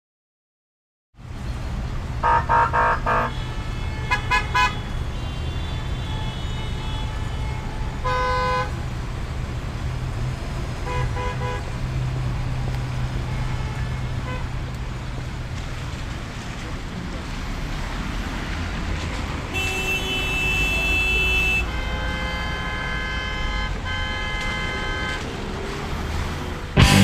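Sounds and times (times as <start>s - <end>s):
low hum of traffic: 1.2s - 27.0s
car horns honking: 2.2s - 8.8s, 10.8s - 11.7s, 19.5s - 25.4s, 26.8s - 27.0s.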